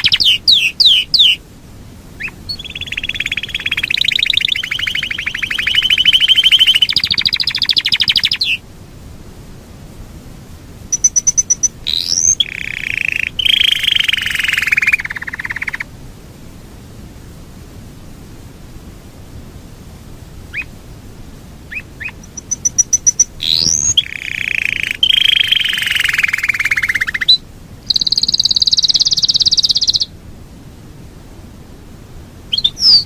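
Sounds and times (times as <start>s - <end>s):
canary singing rolling trills: 0.0s - 1.4s, 2.2s - 8.6s, 10.9s - 15.9s, 20.5s - 20.8s, 21.7s - 30.1s, 32.5s - 33.0s.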